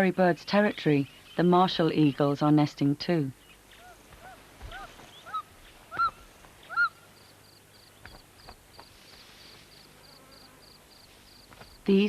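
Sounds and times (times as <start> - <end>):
large bird yelping call: 3.5 - 7.1.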